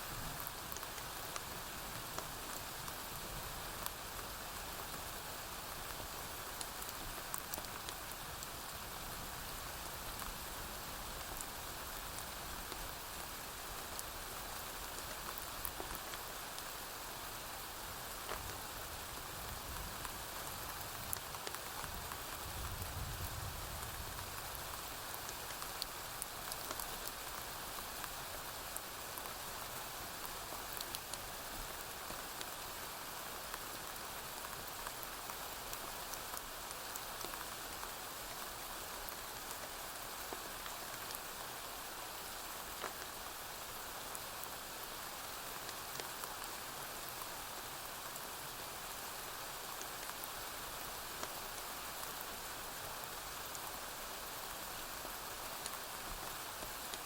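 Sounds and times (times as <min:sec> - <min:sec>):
rain on a roof: 0:00.0 - 0:57.0.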